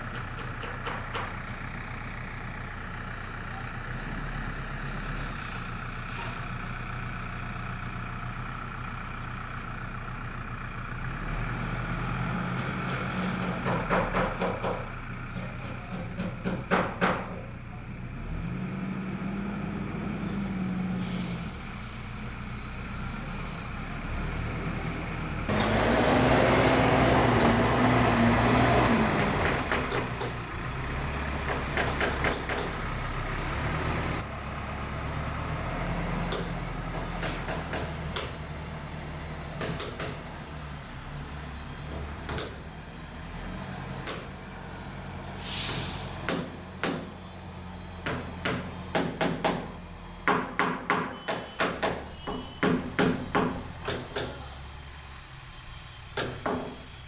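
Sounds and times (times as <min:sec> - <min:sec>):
diesel engine revving: 0:00.0 - 0:50.8, 0:51.7 - 0:57.0
metal clanks and knocks: 0:12.6 - 0:17.5.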